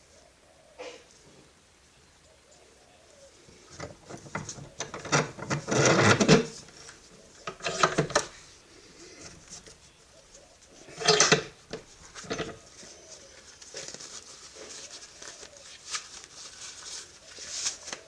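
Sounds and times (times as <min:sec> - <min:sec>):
clattering and knocking: 0:11.0 - 0:12.6.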